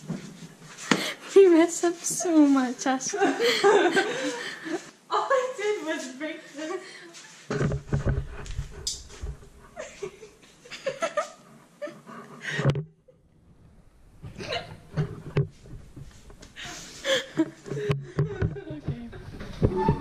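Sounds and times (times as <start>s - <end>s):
girls laughing: 3.0s - 5.8s, 9.6s - 13.2s, 14.3s - 15.0s, 16.6s - 18.9s.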